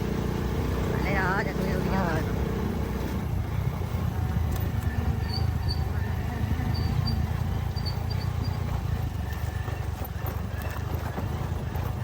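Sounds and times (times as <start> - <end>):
motorcycle engine rumbling: 0.0 - 12.0
short high squeaks: 5.2 - 6.0.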